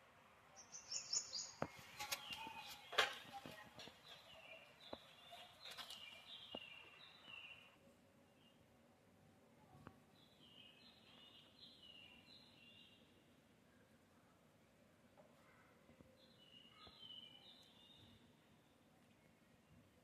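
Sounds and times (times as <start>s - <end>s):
small birds chirping: 0.5s - 8.7s, 9.7s - 14.4s, 15.4s - 20.0s.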